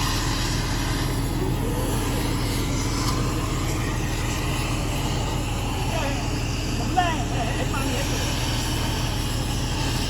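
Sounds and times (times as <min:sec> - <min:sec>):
heavy machinery droning: 0:00.0 - 0:10.0.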